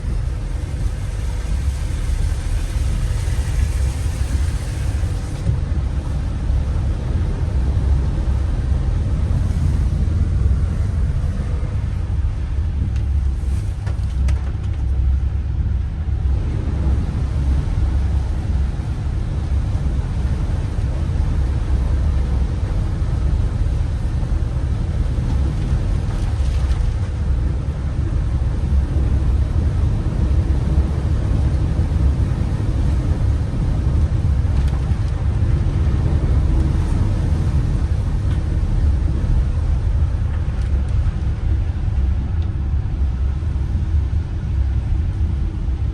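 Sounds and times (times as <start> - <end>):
vehicle engine and tyres rumbling: 0.0 - 45.9.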